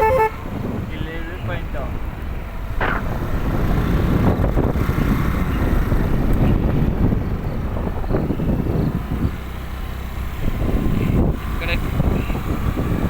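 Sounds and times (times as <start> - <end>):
scooter engine running: 0.0 - 0.4
road noise: 0.0 - 13.0
wind buffeting microphone: 0.0 - 13.0.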